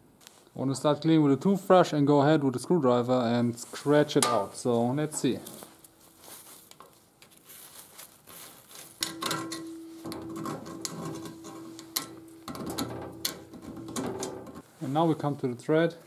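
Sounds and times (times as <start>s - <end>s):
screwdriver scraping in metal thread: 9.0s - 14.6s.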